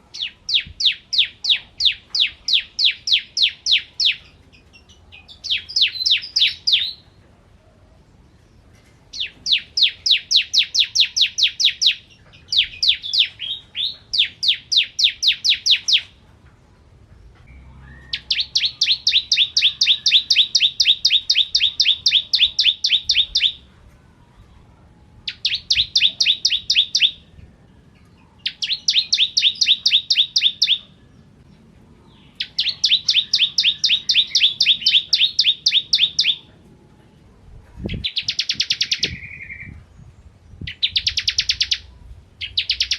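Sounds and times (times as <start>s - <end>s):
bird chipping trill: 0.0s - 7.0s, 9.1s - 16.2s, 17.5s - 23.7s, 25.3s - 27.4s, 28.0s - 31.2s, 32.1s - 36.5s, 37.9s - 39.8s, 40.7s - 42.9s.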